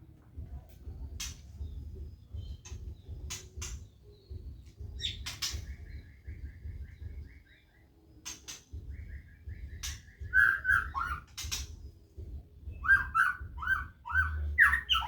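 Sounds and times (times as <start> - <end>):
caged birds chirping: 0.0 - 15.0
sharp knocks and clatter: 11.3 - 12.4.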